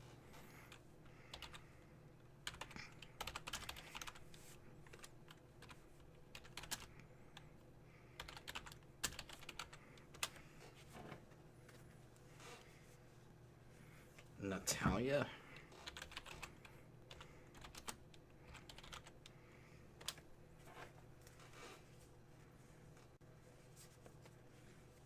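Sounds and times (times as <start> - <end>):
computer keyboard typing: 0.7 - 1.7, 2.4 - 7.5, 8.2 - 10.4, 15.7 - 19.4, 20.0 - 20.2.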